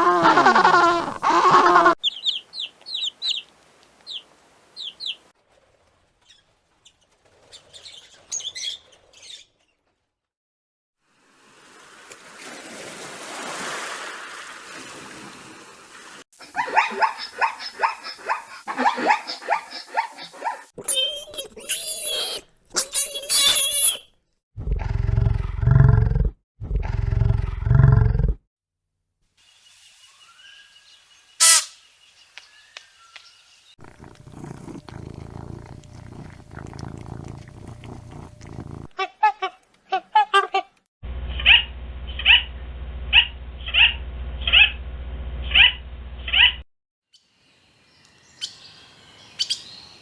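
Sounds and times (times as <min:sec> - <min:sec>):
animal short sliding calls: 0:20.8 - 0:24.0, 0:31.4 - 0:31.8
brief high-pitched call: 0:31.4 - 0:31.8
cat purring: 0:33.8 - 0:38.9.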